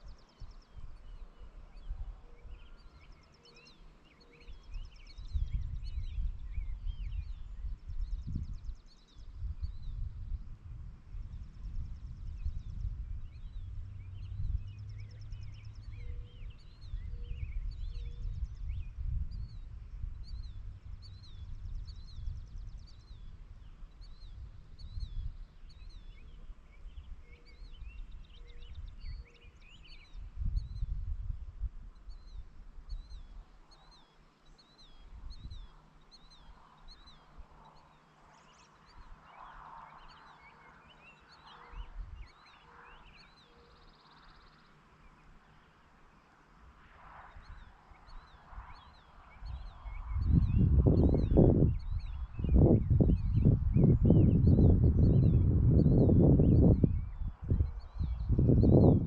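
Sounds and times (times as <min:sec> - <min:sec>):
small birds chirping: 0:00.0 - 0:59.0
wind on microphone: 0:04.5 - 0:33.5, 0:35.0 - 0:37.5, 0:41.7 - 0:42.3, 0:47.3 - 0:59.0.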